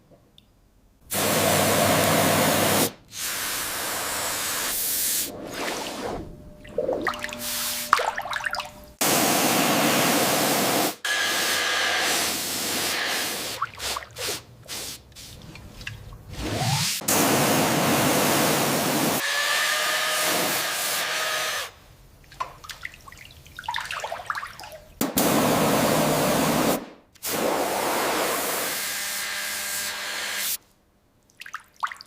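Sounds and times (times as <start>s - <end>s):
hissing spray: 1.1s - 6.1s, 9.0s - 15.4s.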